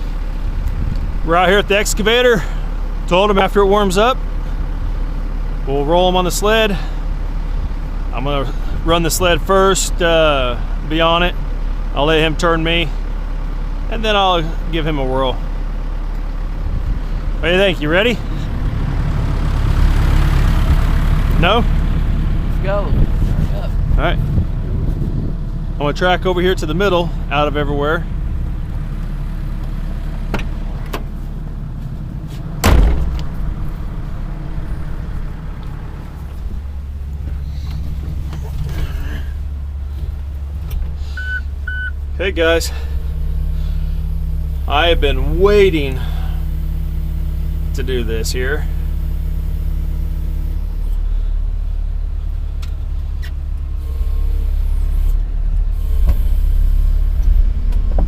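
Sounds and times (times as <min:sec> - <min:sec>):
excavator diesel engine rumbling: 0:00.0 - 0:58.0
loud thump: 0:30.3 - 0:31.1, 0:32.6 - 0:33.8.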